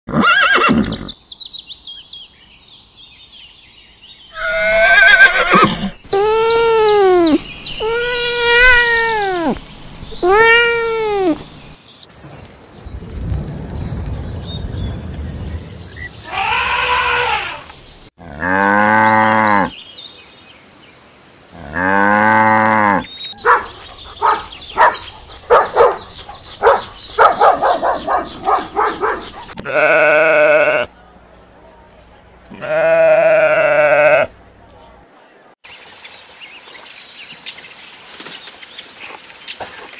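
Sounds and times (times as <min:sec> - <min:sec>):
young elephant calling: 0:04.3 - 0:11.5
dog barking rapidly: 0:23.4 - 0:29.6.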